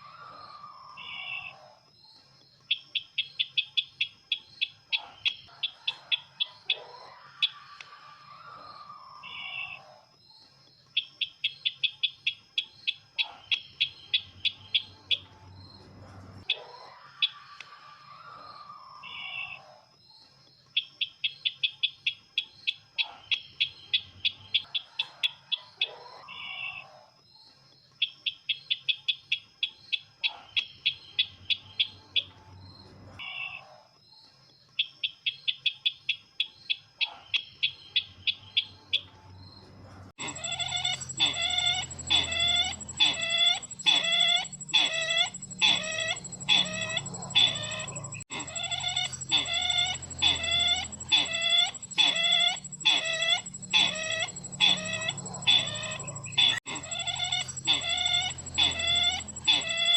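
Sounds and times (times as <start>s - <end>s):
bird trilling high notes: 40.2s - 59.9s
high whine: 40.2s - 59.9s.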